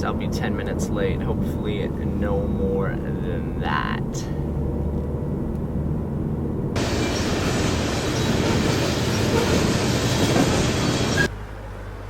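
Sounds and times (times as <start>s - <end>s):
car driving drone: 0.0s - 12.0s
train passing on tracks: 6.8s - 11.4s.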